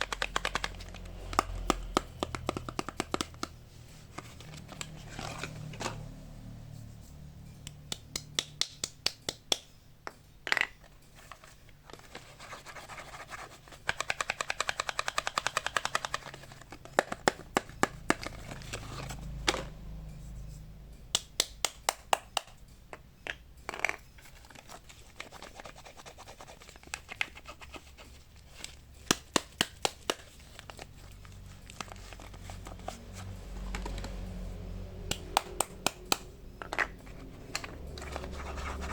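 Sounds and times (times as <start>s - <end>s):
fingers tapping on soap: 0.0s - 3.6s, 29.1s - 30.3s, 35.1s - 36.3s.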